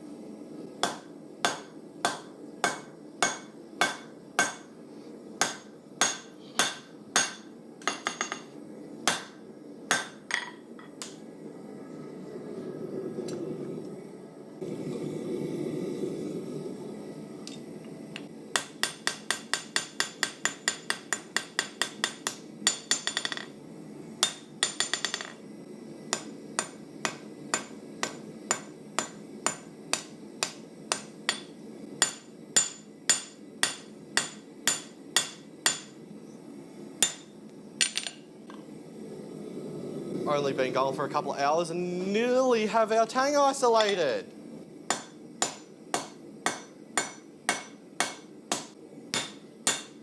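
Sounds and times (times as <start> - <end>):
hammer striking steel on anvil: 0.8 - 4.8, 5.4 - 8.5, 9.1 - 11.2, 18.6 - 23.5, 24.2 - 25.4, 26.1 - 36.0, 37.0 - 38.2, 44.9 - 50.0.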